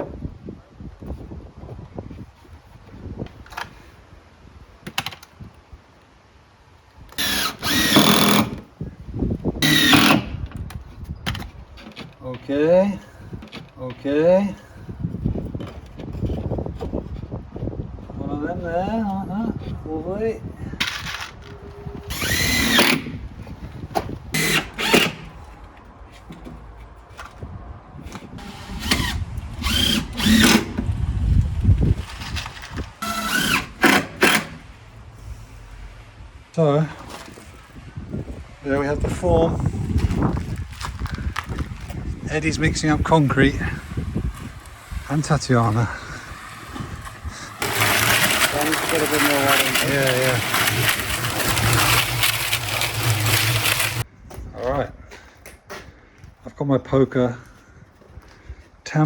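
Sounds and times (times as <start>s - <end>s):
wind rumble: 6.9s - 33.8s, 34.4s - 55.0s
power drill driving screw: 7.1s - 8.6s, 9.6s - 10.4s, 20.8s - 23.3s, 24.3s - 25.6s, 28.4s - 30.8s, 32.0s - 34.7s, 43.5s - 54.0s.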